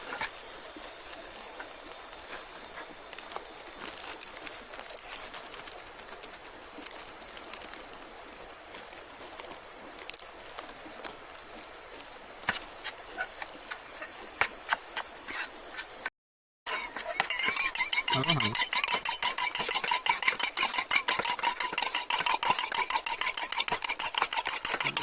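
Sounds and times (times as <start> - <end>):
faint forest hiss: 0.0 - 16.1
high-pitched insect drone: 16.7 - 25.0.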